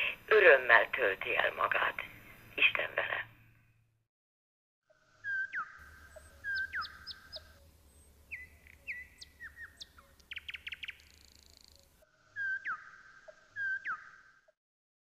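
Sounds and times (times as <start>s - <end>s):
songbird whistling and trilling: 5.2s - 14.6s.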